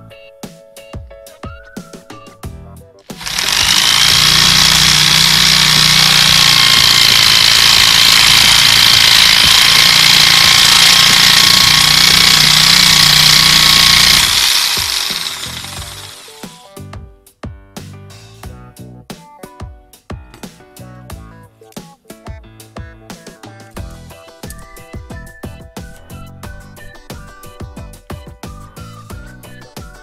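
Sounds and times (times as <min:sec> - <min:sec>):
drill-driven saw cutting wood: 0:03.1 - 0:16.6.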